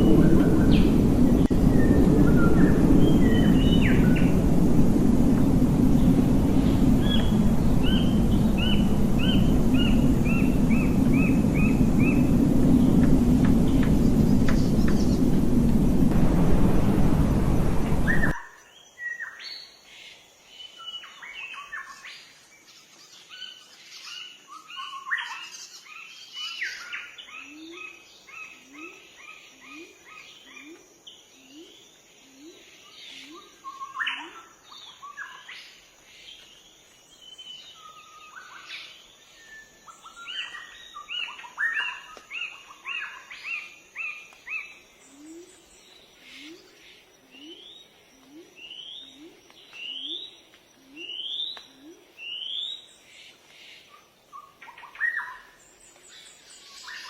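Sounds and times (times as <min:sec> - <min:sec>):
low rising note: 0:00.0 - 0:18.4
songbirds singing and chirping: 0:00.0 - 0:57.0.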